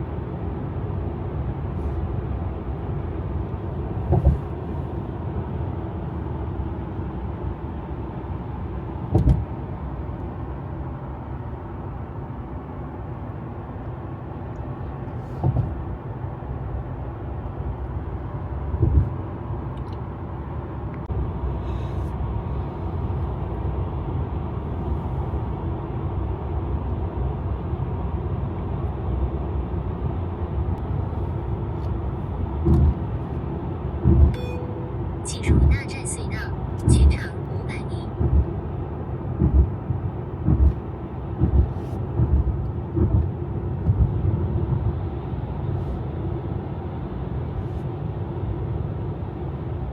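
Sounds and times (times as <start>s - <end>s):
car road noise: 0.0s - 49.9s
low thumps: 39.4s - 39.8s, 41.4s - 44.2s.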